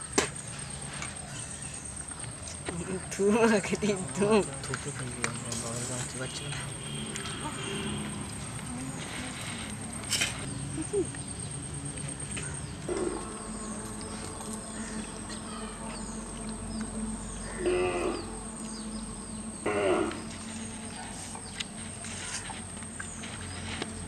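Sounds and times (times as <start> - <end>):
small birds chirping: 0.9 - 24.0
high-pitched whine: 6.2 - 23.5.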